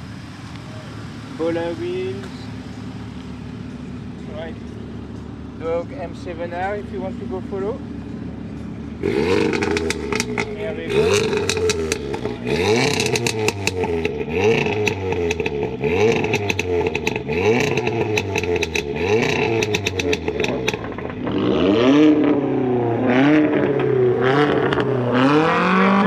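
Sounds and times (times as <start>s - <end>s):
car engine revving: 0.0s - 26.0s
exhaust pops crackling: 0.3s - 26.0s.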